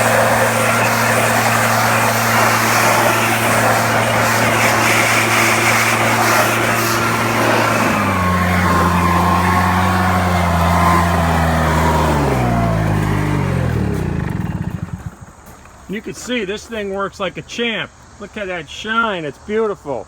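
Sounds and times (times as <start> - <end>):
leaf blower running: 0.0 - 15.8.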